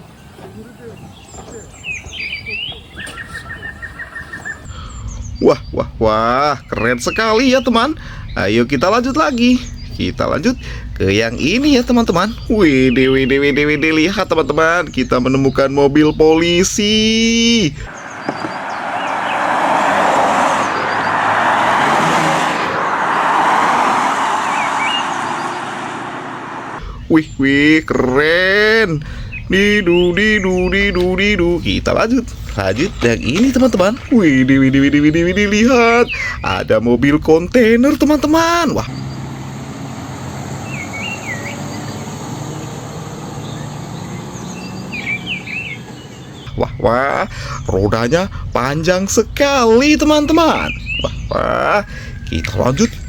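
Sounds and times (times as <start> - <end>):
car road noise rushing: 0.0 - 53.0
bird warbling chirps: 0.8 - 19.9, 24.3 - 36.8, 43.4 - 53.0
low hum: 17.8 - 35.3.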